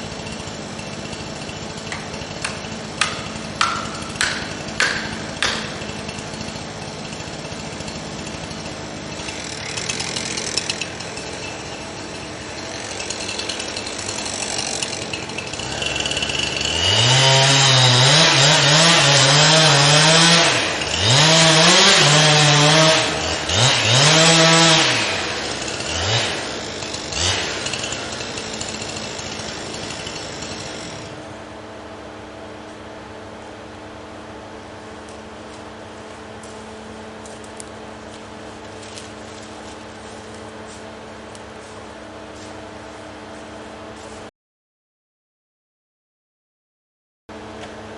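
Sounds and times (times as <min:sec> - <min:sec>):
chainsaw revving: 0:00.0 - 0:31.4.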